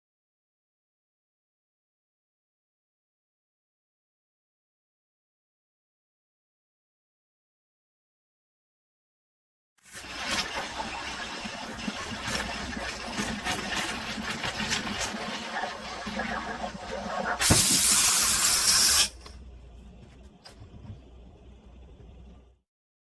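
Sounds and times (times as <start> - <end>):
espresso machine sputtering and hissing: 10.0 - 19.2
burst of steam: 17.4 - 19.2.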